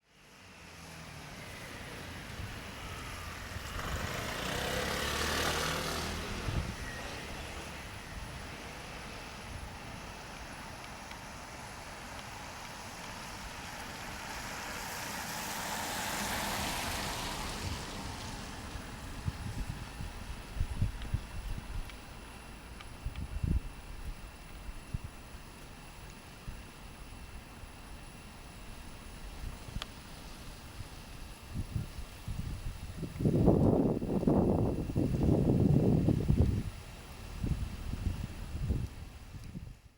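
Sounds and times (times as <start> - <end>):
vehicles passing on wet road: 0.1 - 22.0
rain hiss: 0.1 - 39.9.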